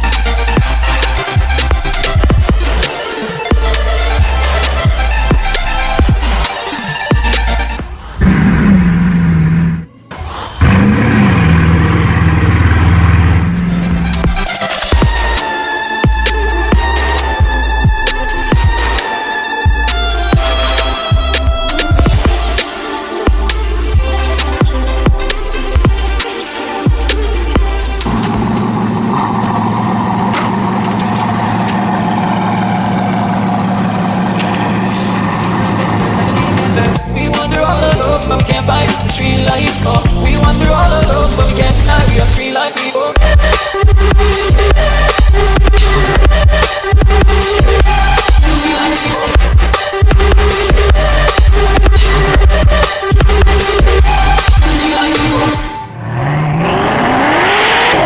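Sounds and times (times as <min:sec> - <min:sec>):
sports car engine running: 0:00.0 - 0:09.9, 0:10.6 - 0:19.0, 0:19.7 - 0:42.4
sports car engine revving: 0:07.2 - 0:15.5, 0:26.9 - 0:42.4, 0:49.3 - 0:58.0.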